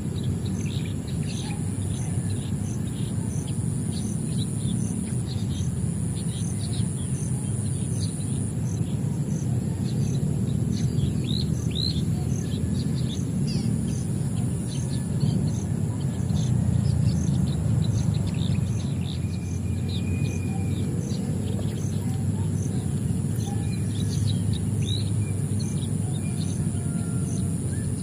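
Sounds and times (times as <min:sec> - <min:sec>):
small birds chirping: 0:00.0 - 0:28.0
steady high buzz with ticking: 0:00.0 - 0:28.0.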